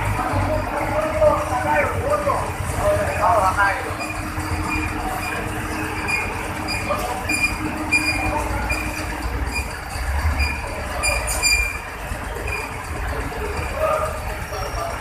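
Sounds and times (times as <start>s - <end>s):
truck engine rumbling: 0.0s - 15.0s
short high-pitched squeals: 3.9s - 12.8s.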